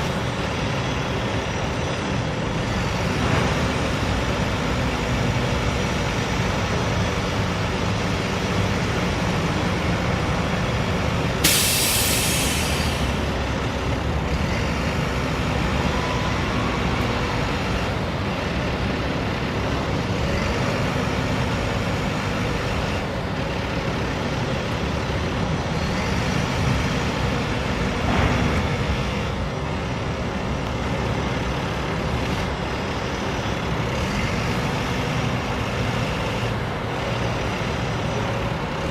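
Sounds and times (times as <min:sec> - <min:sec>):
diesel engine running: 0:00.0 - 0:38.9
compressed air hiss: 0:11.4 - 0:13.2.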